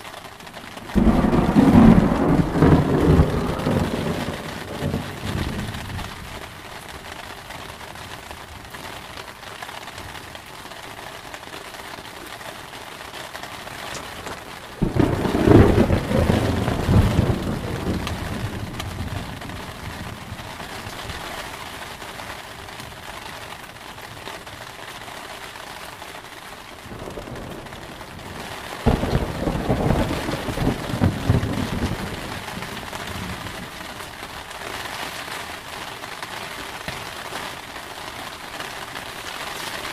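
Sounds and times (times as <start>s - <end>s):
heavy rain: 0.0s - 39.9s
thunder rumbling: 0.7s - 7.1s, 14.0s - 21.3s, 26.9s - 34.5s.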